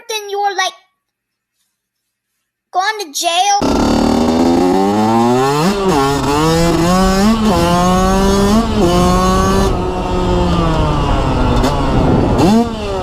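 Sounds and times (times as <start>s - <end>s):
dirt bike engine accelerating: 3.6s - 13.0s.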